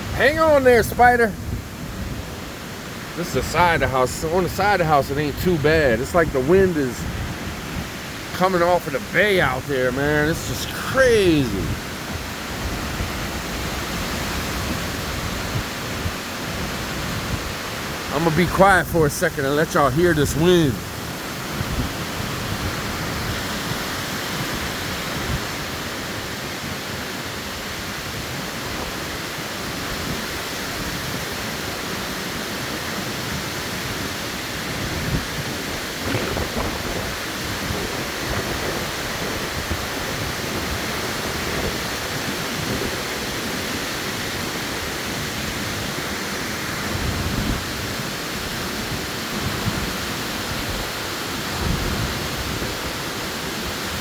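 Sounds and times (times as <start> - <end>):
wind gusts buffeting microphone: 0.0 - 31.4, 32.8 - 54.0
wind rushing through trees: 0.0 - 54.0.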